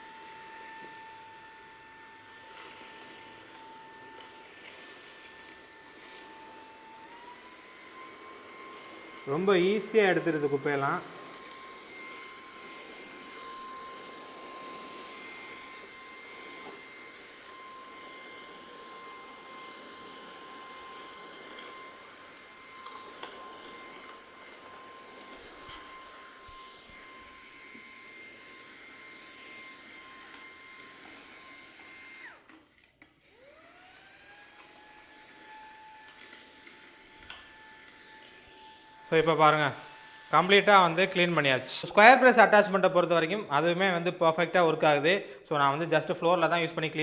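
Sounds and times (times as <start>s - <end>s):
brush working over floor: 0.0s - 42.9s
handheld vacuum cleaner whining: 0.0s - 47.0s.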